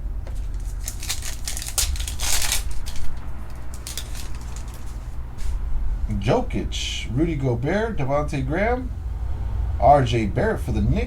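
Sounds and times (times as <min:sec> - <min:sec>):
cards clicking and rustling: 0:00.2 - 0:05.5
foil wrapper crinkling and tearing: 0:00.3 - 0:05.2.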